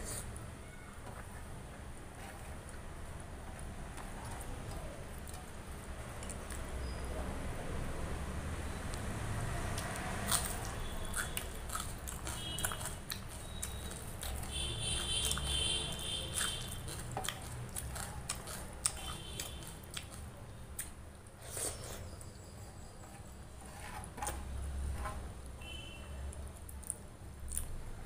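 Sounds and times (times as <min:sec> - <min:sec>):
wet chewing: 0:03.5 - 0:07.0, 0:09.7 - 0:22.3, 0:26.3 - 0:27.8.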